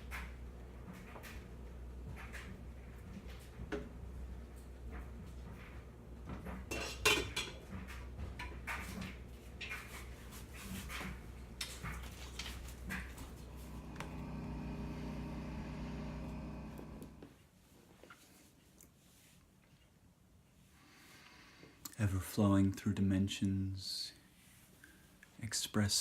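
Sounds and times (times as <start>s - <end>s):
steady hum: 7.4s - 17.3s.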